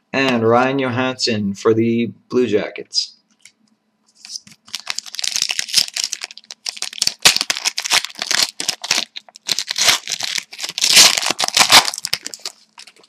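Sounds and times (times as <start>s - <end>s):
plastic wrapper tearing and crinkling: 4.2s - 13.0s.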